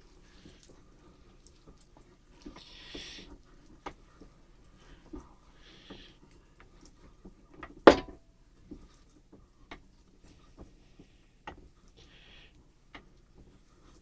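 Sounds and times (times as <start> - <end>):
loud metal clank: 7.9 - 8.2.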